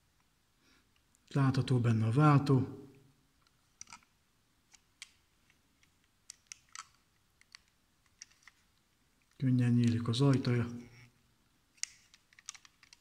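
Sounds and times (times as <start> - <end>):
model car clicking while handled: 5.8 - 8.6, 11.8 - 13.0.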